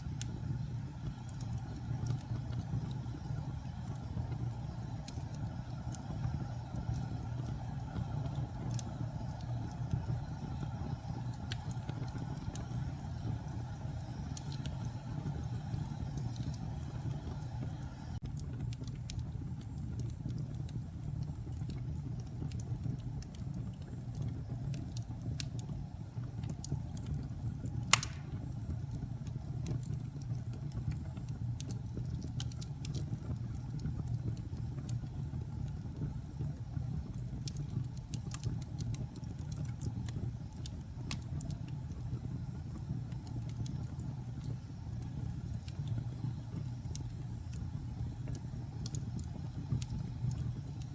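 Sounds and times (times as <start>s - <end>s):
fire crackling: 0.0s - 50.9s
fire rumbling: 0.0s - 50.9s
sharp pop of fire: 27.9s - 28.5s.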